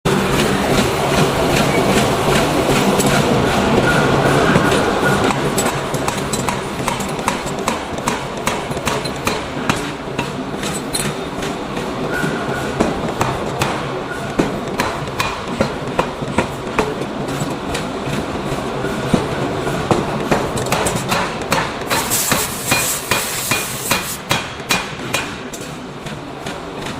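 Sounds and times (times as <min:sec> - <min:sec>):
workshop machinery rumble: 0:00.1 - 0:26.9
hammer striking hot iron: 0:03.9 - 0:11.2, 0:12.1 - 0:17.0, 0:19.9 - 0:25.7.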